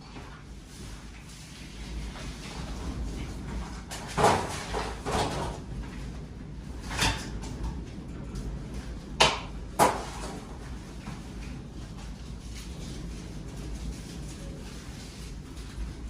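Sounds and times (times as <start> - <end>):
steady low rumble: 0.0 - 4.2, 5.0 - 16.0
objects clunking and knocking: 2.2 - 6.1, 6.8 - 8.5, 9.1 - 11.6.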